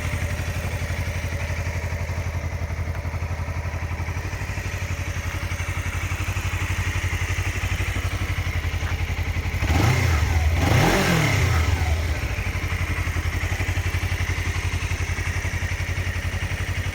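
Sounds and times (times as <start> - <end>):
motorcycle engine idling and revving: 0.0 - 16.9.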